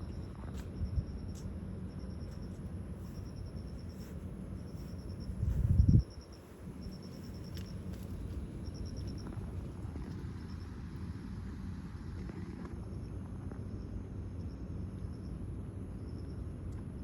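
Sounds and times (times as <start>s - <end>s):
steady low rumble: 0.0s - 11.6s
crickets chirping in trills: 0.0s - 11.8s, 12.9s - 16.7s.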